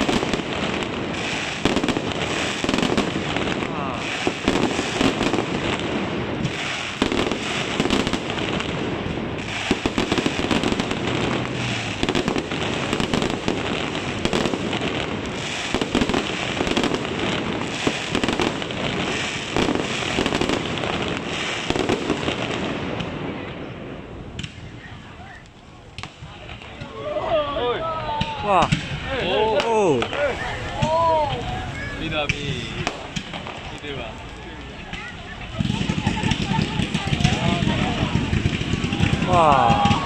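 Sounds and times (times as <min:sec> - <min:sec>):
fireworks bursting and crackling: 0:00.0 - 0:40.0.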